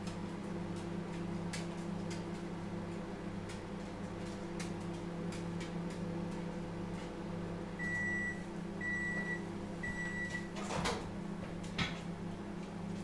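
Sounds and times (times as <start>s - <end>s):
microwave oven humming: 0.0s - 13.0s
microwave beeps: 7.8s - 10.6s.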